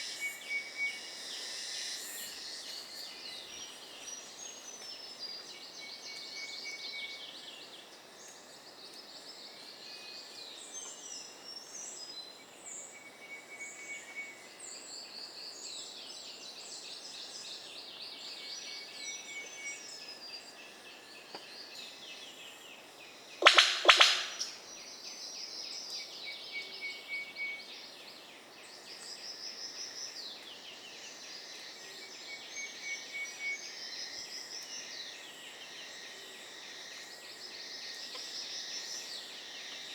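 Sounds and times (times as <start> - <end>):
birds calling: 23.4 - 24.6.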